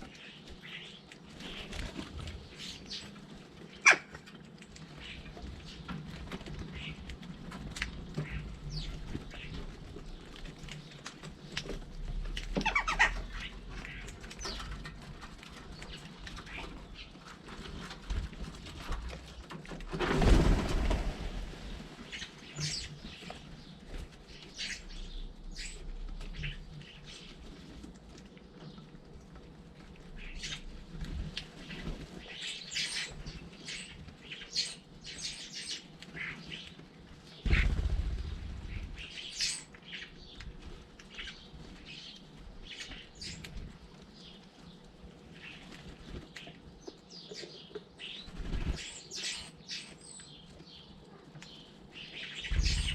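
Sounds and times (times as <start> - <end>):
birds chirping and calling: 0.0 - 52.9
flurries of wingbeats: 37.4 - 39.6.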